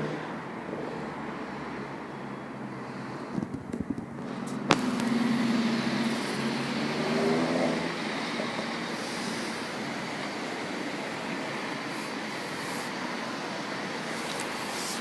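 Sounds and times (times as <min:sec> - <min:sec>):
train passing close by: 0:04.2 - 0:15.0.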